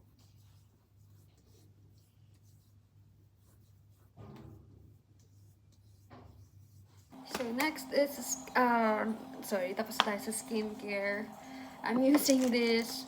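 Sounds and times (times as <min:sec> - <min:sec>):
handling rustle: 0:09.5 - 0:13.0.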